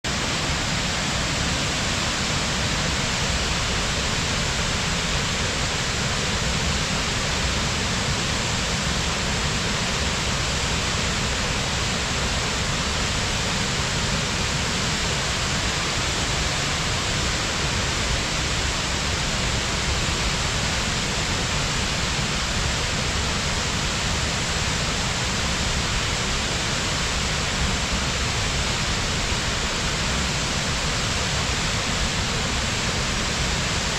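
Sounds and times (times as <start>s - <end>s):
waterfall roaring: 0.1s - 33.9s.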